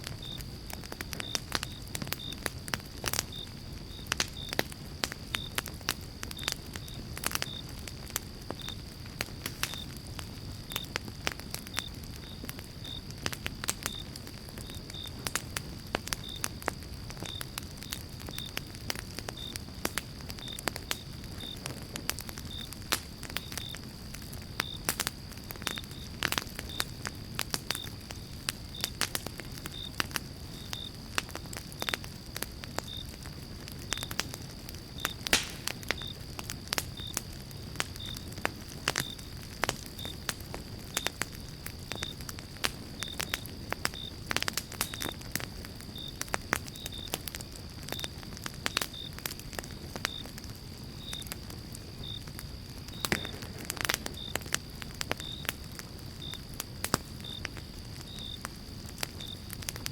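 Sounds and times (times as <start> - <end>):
campfire crackling and popping: 0.0 - 59.9
low rumble of flame: 0.0 - 59.9.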